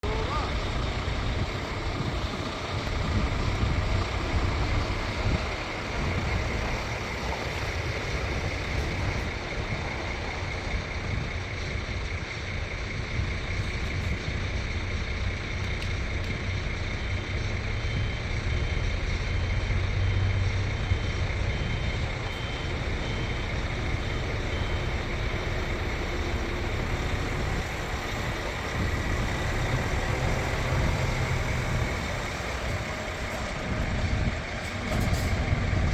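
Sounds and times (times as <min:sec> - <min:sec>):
reversing alarm beeping: 0:00.0 - 0:11.9, 0:20.7 - 0:35.9
diesel truck engine running: 0:00.0 - 0:35.9.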